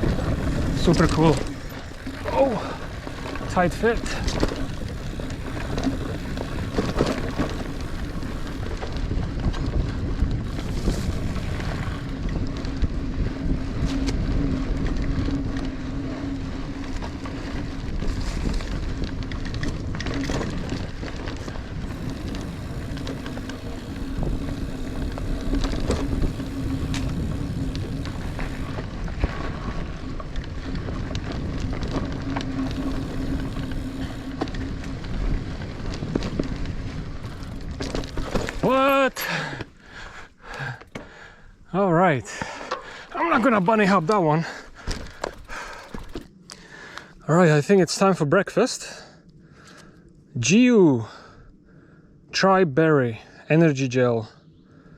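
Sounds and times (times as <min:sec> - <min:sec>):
wind on microphone: 0:00.0 - 0:38.7
bike rattling and clicking: 0:00.0 - 0:50.1
bike tyres rolling over dirt: 0:00.0 - 0:54.9.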